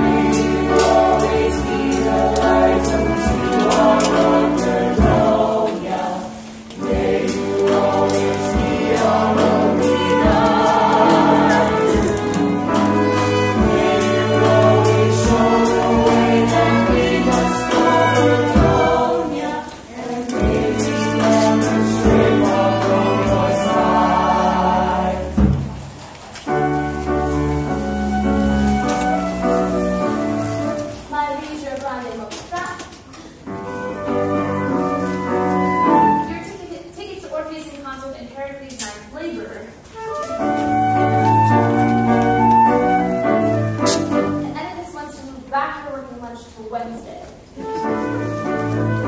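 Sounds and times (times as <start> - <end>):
ensemble singing in chorus: 0.0 - 30.8.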